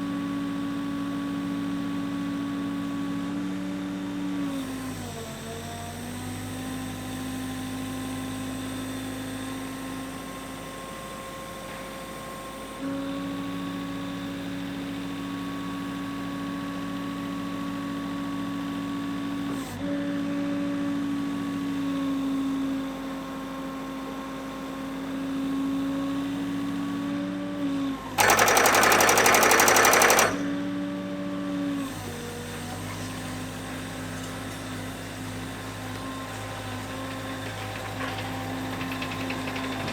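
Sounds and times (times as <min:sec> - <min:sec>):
piling rig engine and hydraulics: 0:28.0 - 0:31.1
pile-driving hammer striking: 0:28.2 - 0:30.6.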